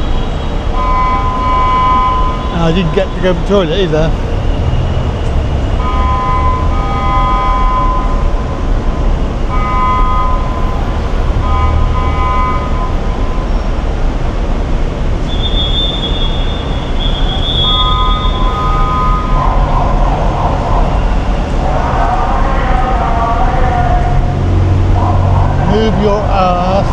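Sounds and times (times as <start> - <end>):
car horn blasts: 0.0 - 8.4, 9.5 - 13.6, 15.2 - 21.8
road and engine rumble: 0.0 - 26.9
high whistle-like tone: 15.3 - 19.4.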